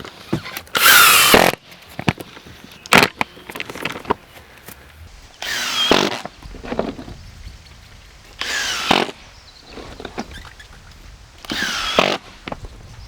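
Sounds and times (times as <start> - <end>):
foam board squeaking when cut: 8.4 - 10.7, 11.5 - 12.4.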